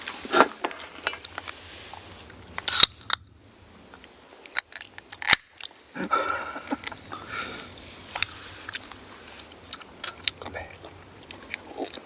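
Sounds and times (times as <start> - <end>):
person chewing noodles: 8.2 - 12.0.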